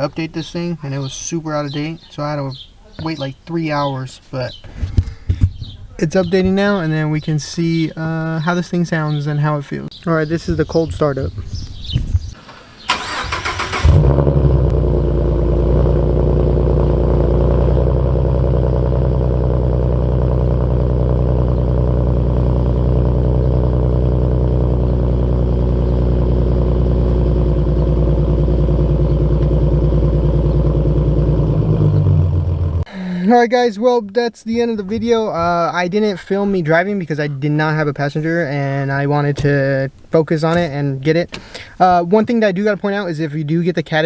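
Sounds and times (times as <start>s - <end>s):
car engine cranking: 12.4s - 32.9s
car engine starting and idling: 12.4s - 33.0s.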